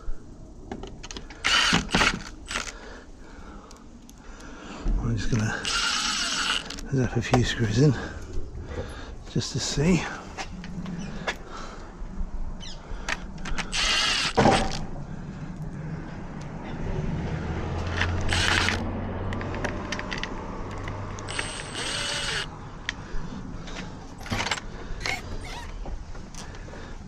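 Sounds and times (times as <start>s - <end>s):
cordless drill whine: 1.3s - 2.8s, 5.5s - 6.9s, 13.5s - 14.8s, 17.8s - 18.8s, 21.2s - 22.5s
handling clicks and knocks: 17.8s - 21.3s.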